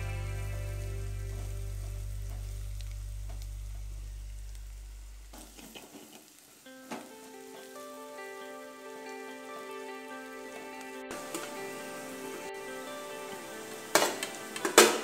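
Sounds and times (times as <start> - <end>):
soft background music: 0.0 - 2.8, 6.8 - 15.0
onions sizzling in oil: 5.3 - 9.2.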